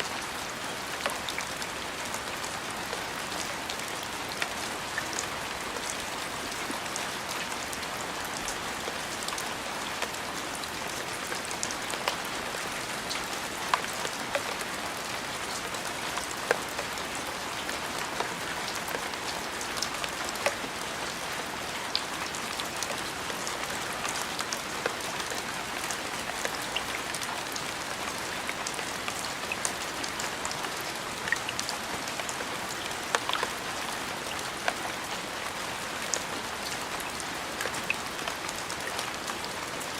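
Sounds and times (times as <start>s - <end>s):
steady rainfall: 0.0s - 39.9s
raindrops ticking close by: 0.1s - 39.9s.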